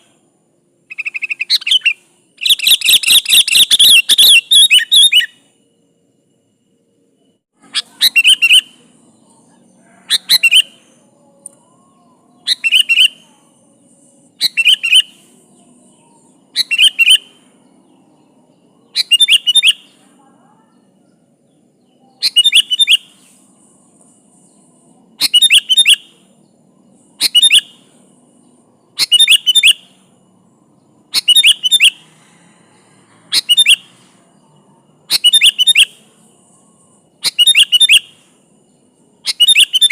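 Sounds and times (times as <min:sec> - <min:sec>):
bird singing bubbly phrases: 0:00.9 - 0:05.3, 0:07.7 - 0:08.7, 0:12.4 - 0:13.2, 0:14.4 - 0:15.1, 0:16.3 - 0:17.4, 0:18.9 - 0:19.9, 0:22.2 - 0:23.1.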